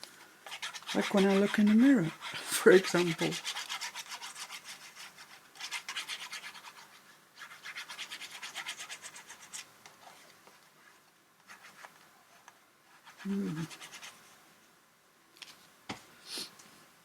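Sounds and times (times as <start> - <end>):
faint scratching: 0.4 - 14.4
rapid rubbing on paper: 0.5 - 9.7, 12.9 - 14.2.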